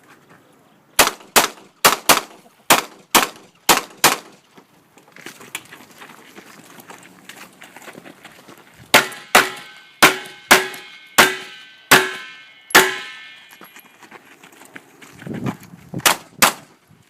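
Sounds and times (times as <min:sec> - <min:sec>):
pistol shots with metallic ring: 0:09.0 - 0:13.6.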